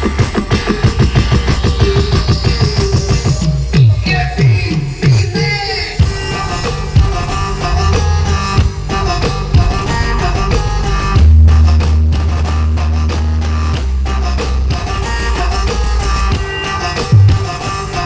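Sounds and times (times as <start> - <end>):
heavy deep bass: 0.0 - 18.0
loud music with guitar and drums: 6.0 - 18.0.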